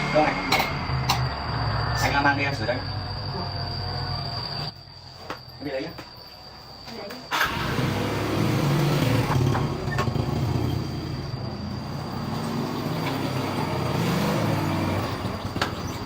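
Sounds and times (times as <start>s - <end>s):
motorbike engine running: 7.4s - 16.0s.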